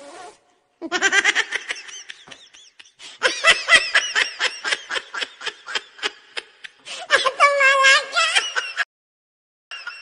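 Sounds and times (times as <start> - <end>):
person laughing: 0.8 - 7.4.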